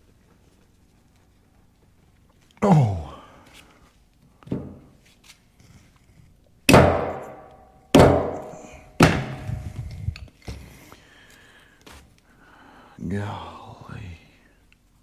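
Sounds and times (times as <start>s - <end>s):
heavy knocks on metal: 6.7s - 9.8s
lighter metal knocks: 6.7s - 9.9s.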